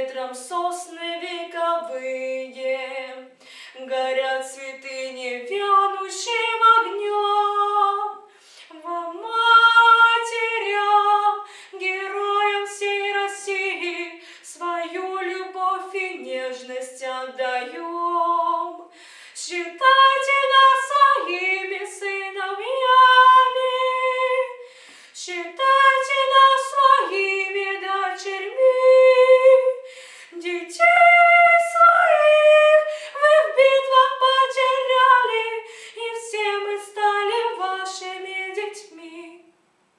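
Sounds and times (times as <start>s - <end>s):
girl singing unaccompanied: 0.0s - 39.5s
singer breathing: 3.4s - 3.8s, 8.3s - 8.7s, 11.4s - 11.8s, 14.2s - 14.5s, 18.9s - 19.4s, 24.6s - 25.2s, 29.8s - 30.4s, 32.9s - 33.2s, 35.6s - 36.0s.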